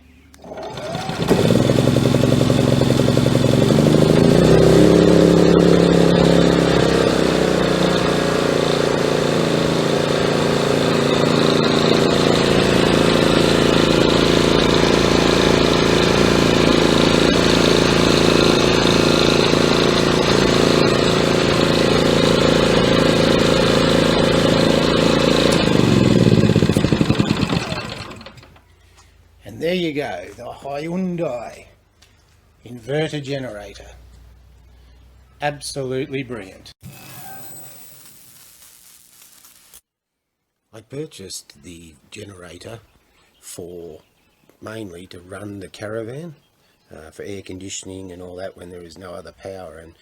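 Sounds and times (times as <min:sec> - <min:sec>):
generator running: 0:00.3 - 0:29.4, 0:36.8 - 0:39.7.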